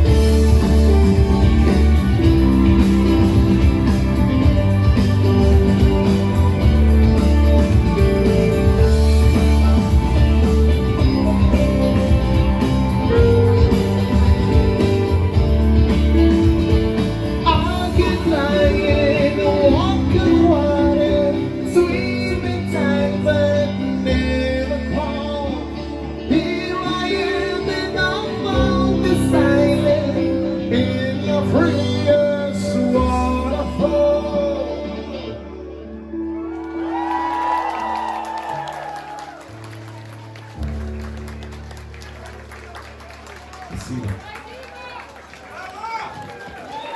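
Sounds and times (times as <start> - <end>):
live band playing: 0.0 - 35.8
person singing: 0.0 - 36.0
guitar: 0.0 - 44.4.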